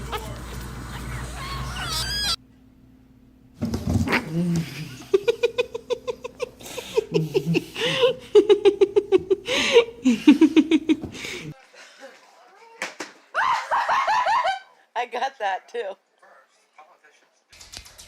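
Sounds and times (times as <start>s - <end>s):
people laughing: 4.6s - 12.3s, 13.3s - 14.8s.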